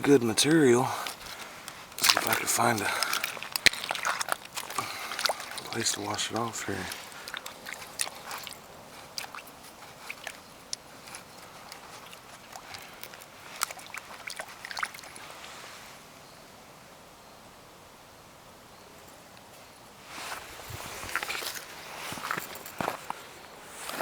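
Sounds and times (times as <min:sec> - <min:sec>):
footsteps crunching on gravel: 0:00.0 - 0:14.9, 0:20.1 - 0:24.0.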